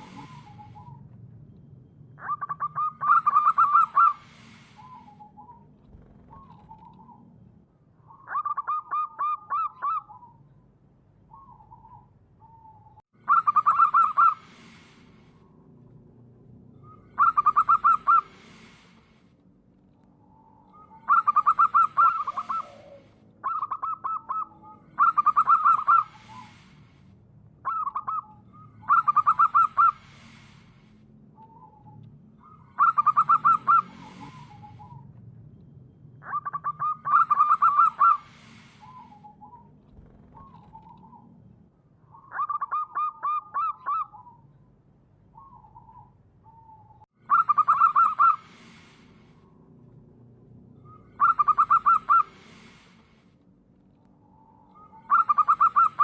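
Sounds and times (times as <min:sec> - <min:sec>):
dove cooing: 0:00.0 - 0:01.0, 0:02.2 - 0:07.2, 0:11.3 - 0:15.0, 0:16.8 - 0:18.9, 0:20.7 - 0:26.8, 0:27.6 - 0:30.5, 0:31.5 - 0:35.0, 0:36.2 - 0:41.3, 0:45.4 - 0:49.0, 0:50.9 - 0:52.9, 0:54.7 - 0:56.0.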